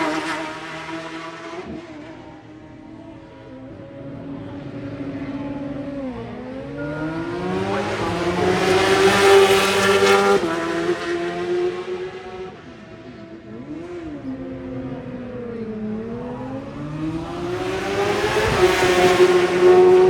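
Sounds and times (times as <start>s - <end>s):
motorcycle engine at high revs: 6.8s - 12.6s.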